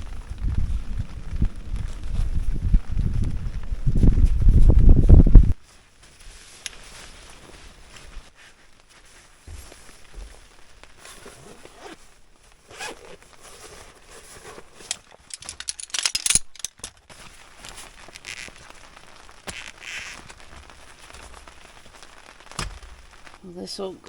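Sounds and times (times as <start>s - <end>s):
rustling handling noises: 1.6s - 24.0s
loud crackling burst: 17.2s - 23.5s.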